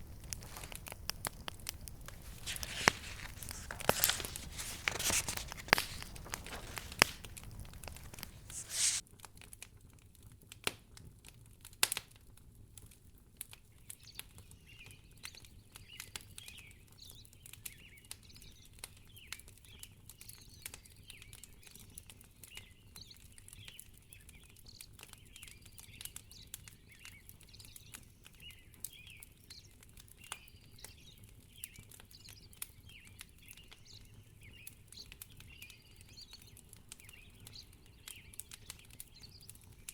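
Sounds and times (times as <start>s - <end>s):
rustling crackle: 0.0s - 9.0s
wood fire crackling: 0.0s - 9.8s, 23.3s - 39.9s.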